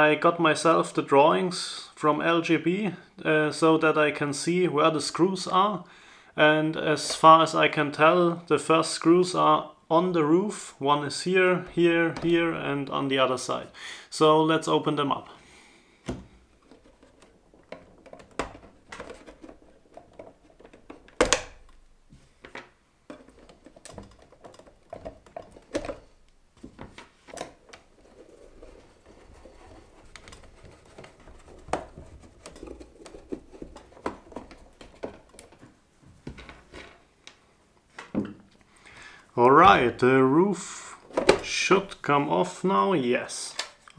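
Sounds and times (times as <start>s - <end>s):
plastic shell being handled: 10.5s - 13.8s, 15.8s - 42.6s.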